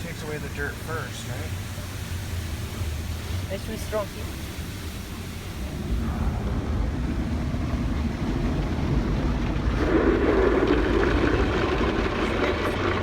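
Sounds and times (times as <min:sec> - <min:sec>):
car wash water spray: 0:00.0 - 0:13.0
deep rumble: 0:05.4 - 0:13.0.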